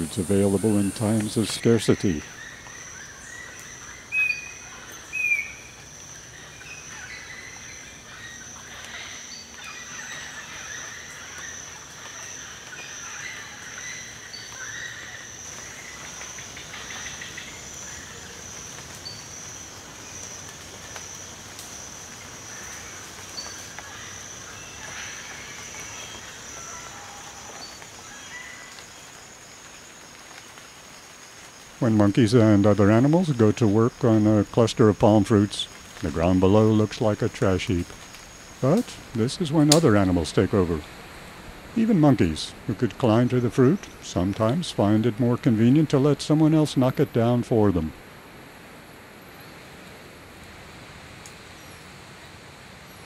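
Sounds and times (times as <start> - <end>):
bird chirps: 0.0 - 18.3.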